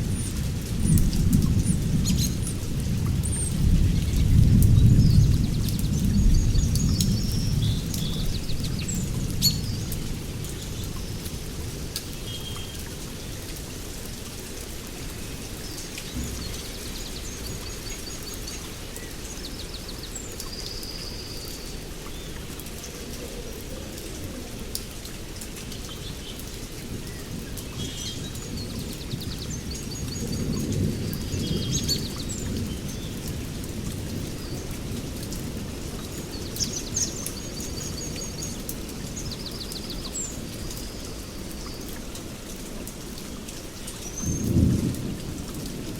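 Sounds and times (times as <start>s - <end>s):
low thunder rumble: 0.0s - 10.4s, 16.1s - 18.8s, 44.2s - 45.9s
heavy rain: 0.0s - 45.9s.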